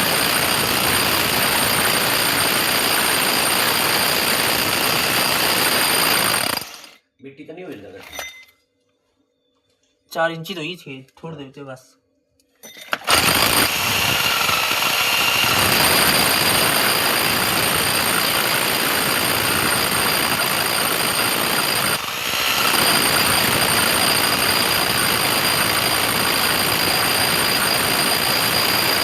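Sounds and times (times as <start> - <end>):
electric power tool whining: 0.0 - 7.0, 12.9 - 29.0.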